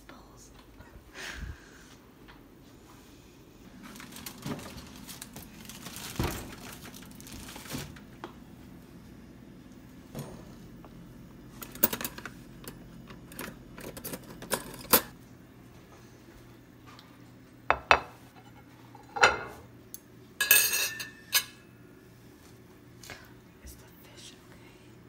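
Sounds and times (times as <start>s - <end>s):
plastic rustling: 3.7s - 8.2s
dishes and container clattering: 20.4s - 21.6s.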